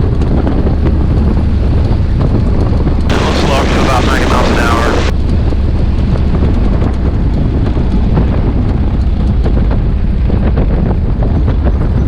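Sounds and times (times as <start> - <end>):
radial aircraft engine rumble: 3.1 - 5.1.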